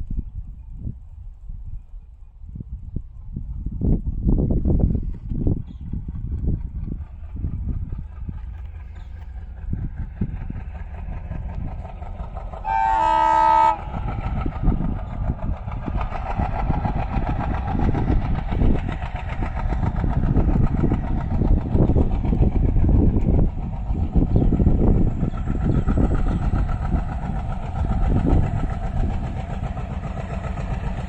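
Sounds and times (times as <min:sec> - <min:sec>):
diesel locomotive engine chugging: 0:00.0 - 0:31.0
locomotive horn: 0:12.6 - 0:14.0.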